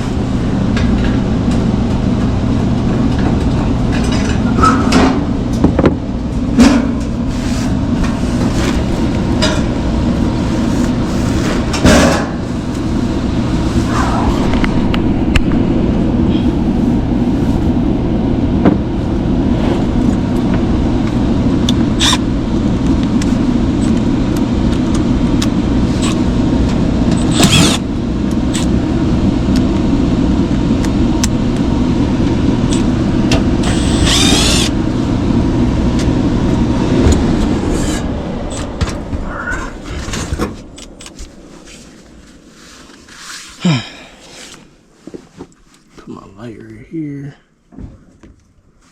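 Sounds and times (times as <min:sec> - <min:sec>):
electric motor humming: 0:20.1 - 0:29.9, 0:30.6 - 0:38.7.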